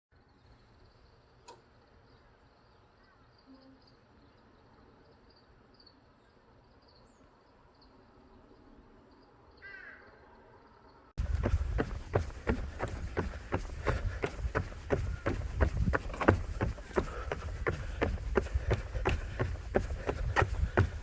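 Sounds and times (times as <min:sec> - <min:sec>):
click: 0:01.4 - 0:01.6
small birds chirping: 0:11.2 - 0:21.0.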